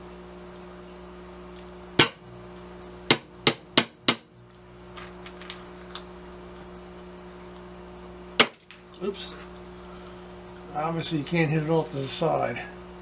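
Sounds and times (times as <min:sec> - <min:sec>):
hammer tapping a nail: 0:02.0 - 0:02.2, 0:03.1 - 0:04.3.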